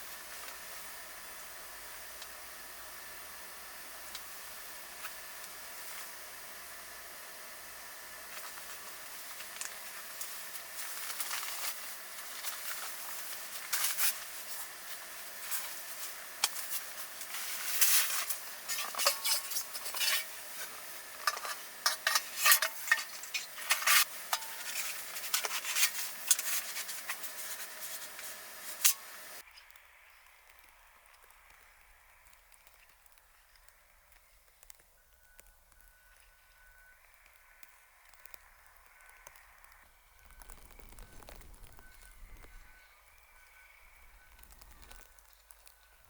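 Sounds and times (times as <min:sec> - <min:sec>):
food sizzling: 0:00.0 - 0:34.1, 0:37.1 - 0:43.2
utensil scraping a pan: 0:17.3 - 0:29.1.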